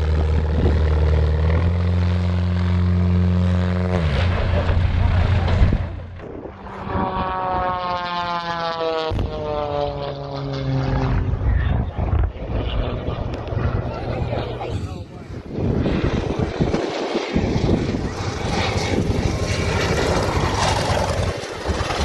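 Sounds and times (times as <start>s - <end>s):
aircraft engine drone: 0.0s - 22.0s.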